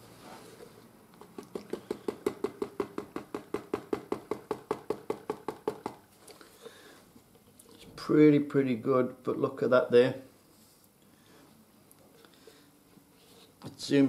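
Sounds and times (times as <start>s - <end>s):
hollow taps on plastic jug: 1.2s - 6.0s.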